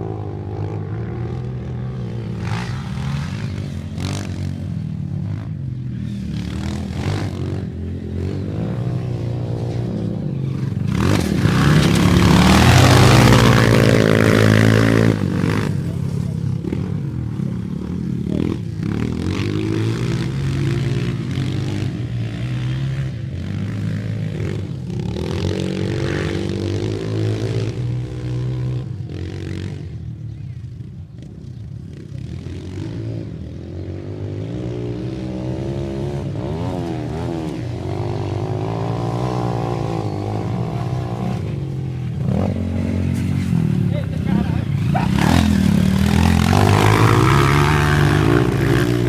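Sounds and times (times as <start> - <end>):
dirt bike engines revving: 0.0 - 49.0.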